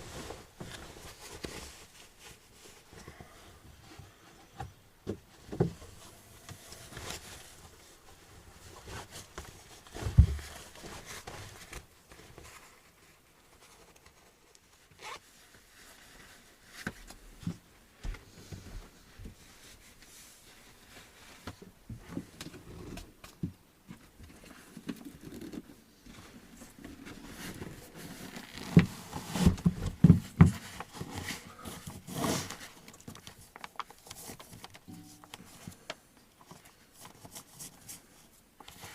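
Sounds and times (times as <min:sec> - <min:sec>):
rustling and scraping: 0:00.0 - 0:38.9
zipper: 0:15.0 - 0:15.2.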